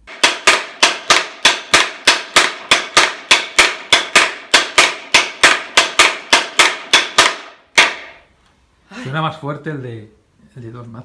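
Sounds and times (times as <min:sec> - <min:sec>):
wooden rattle knocks: 0:00.0 - 0:08.2.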